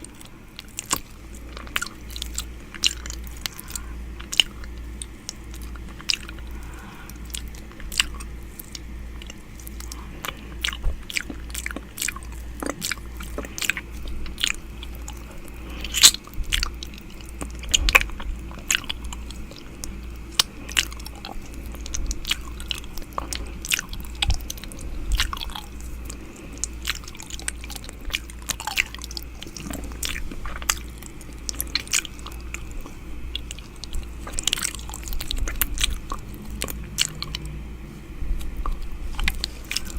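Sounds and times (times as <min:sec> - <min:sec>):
low pulsing hum: 0:00.0 - 0:39.9.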